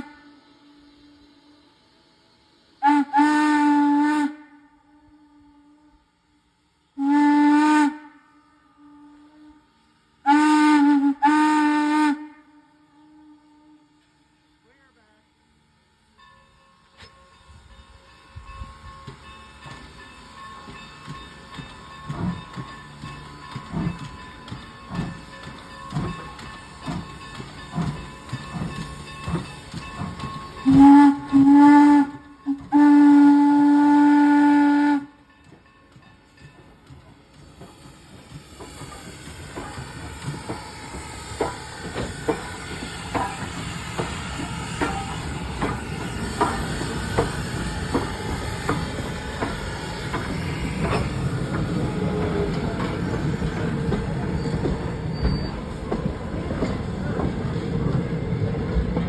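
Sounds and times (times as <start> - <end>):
steam whistle blasts: 0.0 - 1.9, 2.8 - 6.2, 7.0 - 14.2, 30.1 - 35.3
steam locomotive whistle: 0.0 - 2.0, 2.8 - 6.3, 6.9 - 15.1, 20.6 - 35.3, 37.6 - 58.7.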